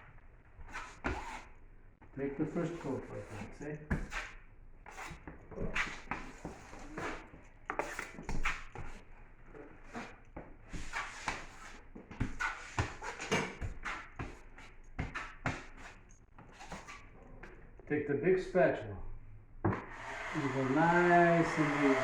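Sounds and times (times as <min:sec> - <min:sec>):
drywall knife scraping compound: 0:00.6 - 0:01.6, 0:02.6 - 0:09.0, 0:19.7 - 0:22.0.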